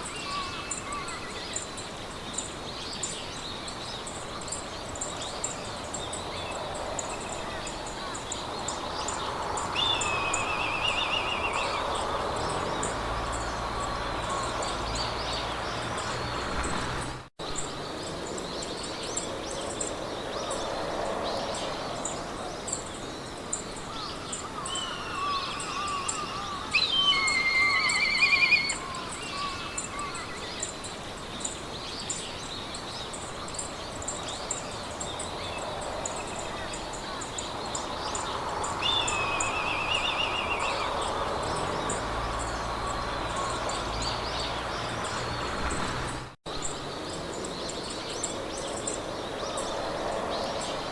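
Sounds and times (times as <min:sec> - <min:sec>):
insect chirping: 0:00.0 - 0:16.7, 0:22.0 - 0:45.8
songbirds singing: 0:00.0 - 0:50.9
wind in the grass: 0:00.0 - 0:50.9.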